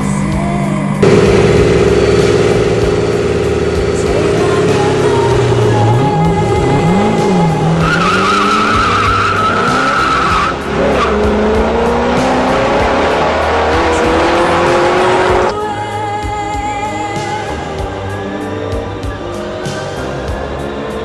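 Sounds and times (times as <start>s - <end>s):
tires squealing: 1.0s - 15.5s
sports car engine revving: 1.0s - 15.6s.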